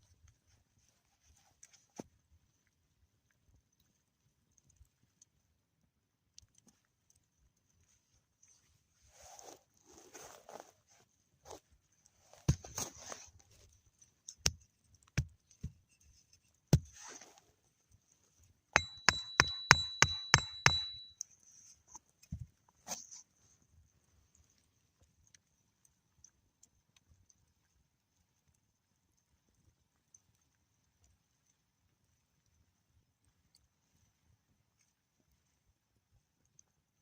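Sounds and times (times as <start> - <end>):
sharp knocks and hard strikes: 18.8 - 21.1
faint ringing: 18.8 - 21.2.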